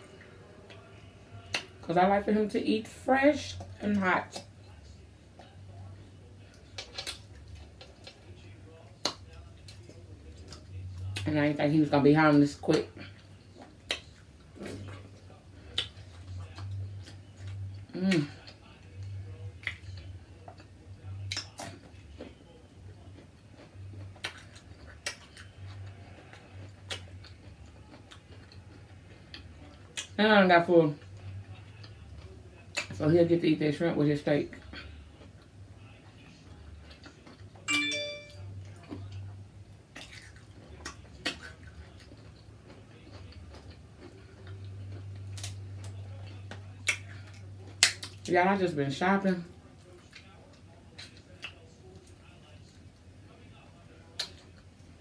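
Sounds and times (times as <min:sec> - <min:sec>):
low steady hum: 0:00.0 - 0:55.0
eating clicks and crackles: 0:06.4 - 0:11.3, 0:54.0 - 0:55.0.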